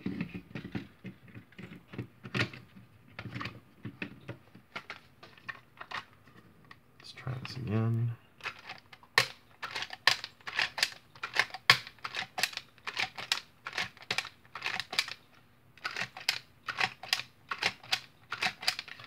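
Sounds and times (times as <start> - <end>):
sharp plastic clicks: 8.4 - 15.2, 15.8 - 19.0.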